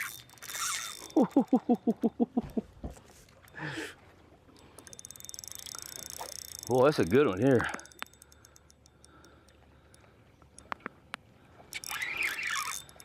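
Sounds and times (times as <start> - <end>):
fishing reel clicking: 0.0 - 1.6, 4.6 - 10.8, 11.7 - 13.0.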